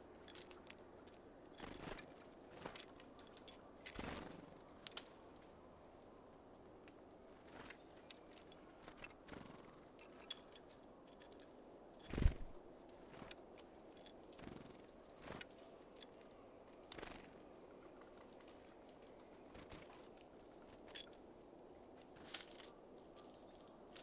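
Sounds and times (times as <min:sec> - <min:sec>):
birds tapping and clicking: 0:00.2 - 0:24.0.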